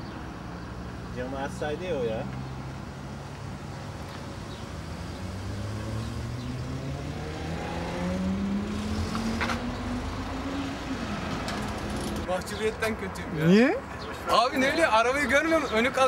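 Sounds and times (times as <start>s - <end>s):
road rumble: 0.0s - 16.0s
car engine accelerating: 4.7s - 12.3s.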